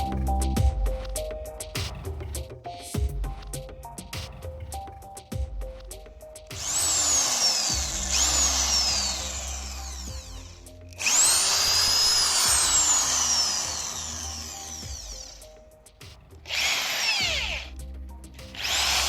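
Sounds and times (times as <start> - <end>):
impact drill motor whine: 6.6 - 15.5, 16.5 - 17.7, 18.6 - 19.0.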